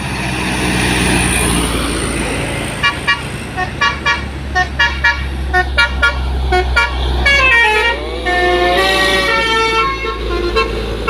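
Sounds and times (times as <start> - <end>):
heavy truck engine rumbling: 0.0 - 11.0
multi-note horn sliding in pitch: 3.6 - 11.0.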